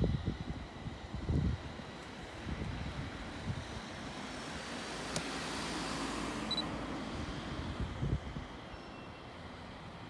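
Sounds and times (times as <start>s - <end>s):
wind on microphone: 0.0s - 4.0s, 7.1s - 8.7s.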